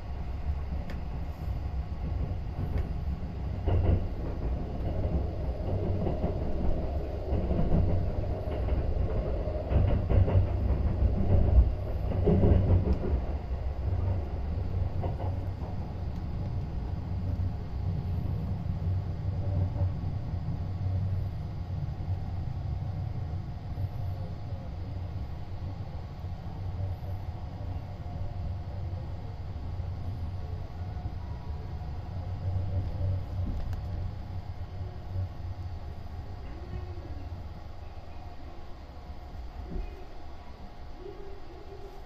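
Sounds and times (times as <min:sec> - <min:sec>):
train clatter: 0:00.0 - 0:21.3, 0:29.9 - 0:37.5, 0:39.4 - 0:40.1
train wheels rumbling on track: 0:00.0 - 0:42.0.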